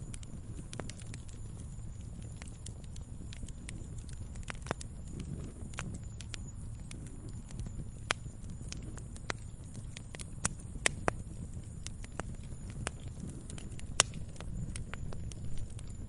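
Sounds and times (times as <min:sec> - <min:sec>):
campfire crackling: 0:00.0 - 0:16.0.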